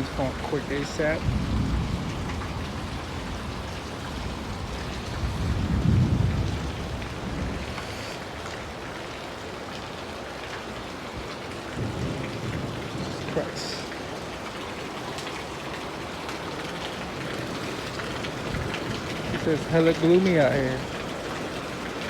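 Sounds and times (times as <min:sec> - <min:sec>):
low rumble of thunder: 0:00.0 - 0:08.0, 0:11.6 - 0:21.0
rain falling: 0:00.0 - 0:22.0.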